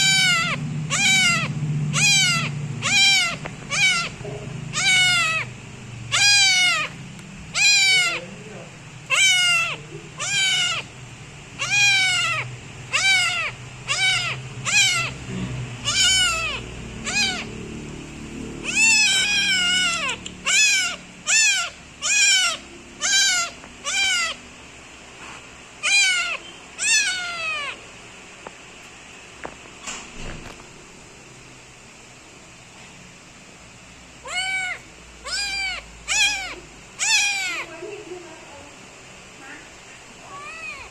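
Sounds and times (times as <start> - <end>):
kitten meowing loudly: 0.0 - 5.5, 6.1 - 8.3, 9.1 - 10.9, 11.6 - 15.2, 15.8 - 17.6, 18.6 - 24.4, 25.8 - 27.8, 34.2 - 37.8, 40.2 - 40.9.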